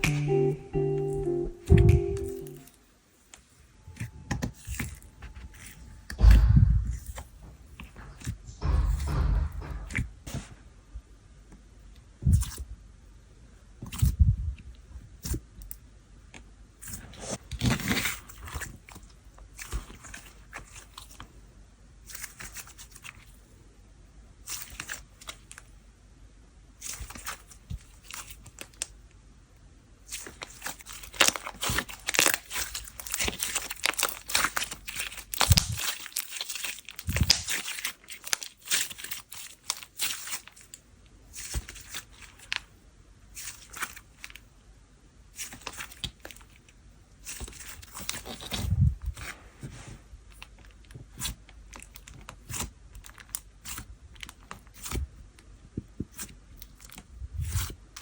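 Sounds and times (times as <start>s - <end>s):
soft thumps: 6.1s - 10.6s
slime crackling and popping: 30.1s - 40.7s.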